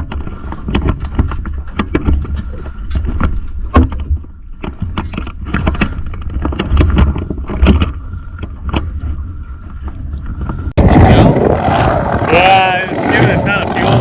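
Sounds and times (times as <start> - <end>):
knocks and thumps: 0.0 - 8.9
low rumble: 5.3 - 14.0
loud engine running: 10.8 - 14.0.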